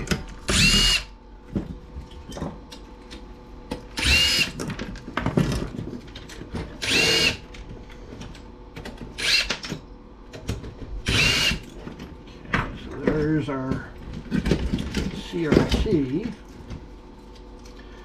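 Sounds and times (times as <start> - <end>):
power drill whirring: 0.5 - 1.1, 4.0 - 4.6, 6.8 - 7.4, 9.2 - 9.6, 11.0 - 11.7
small clicks and handling of parts: 2.0 - 10.8, 11.6 - 17.8.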